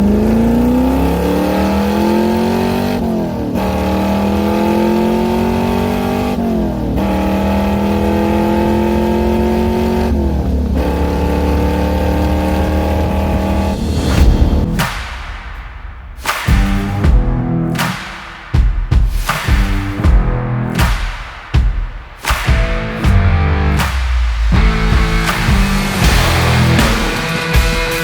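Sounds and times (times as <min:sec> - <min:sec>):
car engine accelerating: 0:00.0 - 0:15.0, 0:23.0 - 0:27.4.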